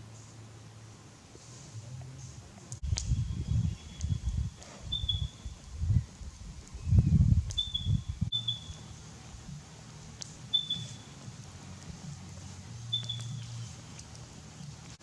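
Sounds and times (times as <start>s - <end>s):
outdoor bush ambience: 0.0s - 15.0s
wind on microphone: 1.8s - 13.6s
faint sharp clicks: 2.6s - 3.2s, 4.0s - 4.8s, 10.2s - 11.0s, 13.0s - 15.0s
bird chirping: 2.8s - 15.0s.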